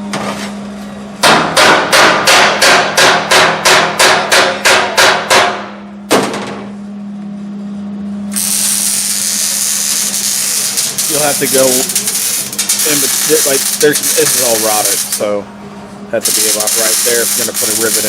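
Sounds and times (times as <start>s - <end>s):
hammer striking sheet metal: 1.2s - 6.6s
steady hiss: 10.0s - 15.2s, 16.2s - 18.0s.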